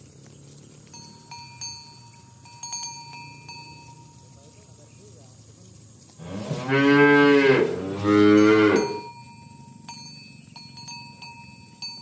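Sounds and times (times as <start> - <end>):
faint metallic clinks: 0.0 - 6.2, 8.3 - 12.0
cow mooing: 6.2 - 9.1.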